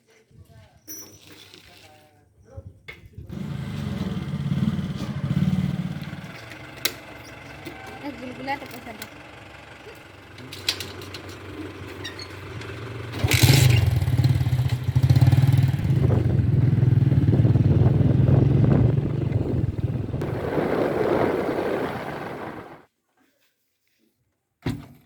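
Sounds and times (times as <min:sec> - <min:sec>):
engine clatter: 0:03.3 - 0:22.8
diesel engine running: 0:03.4 - 0:22.8.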